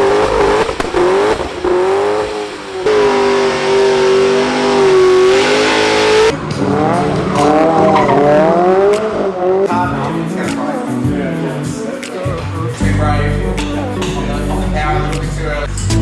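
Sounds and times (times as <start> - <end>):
car engine at high revs: 0.0 - 9.7
tyres squealing and skidding: 0.0 - 9.7.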